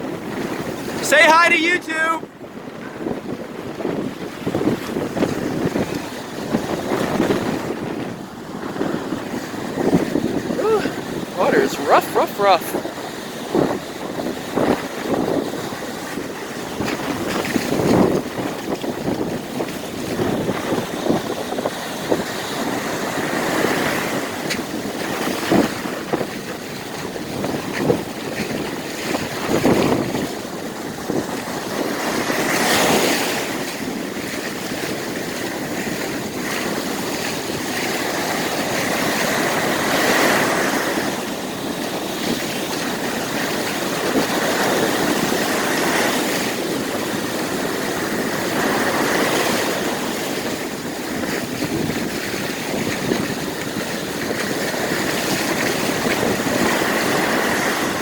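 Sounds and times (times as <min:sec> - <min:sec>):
heavy waves crashing: 0:00.0 - 0:58.0
ocean surf breaking: 0:00.0 - 0:58.0
wind buffeting microphone: 0:00.0 - 0:58.0.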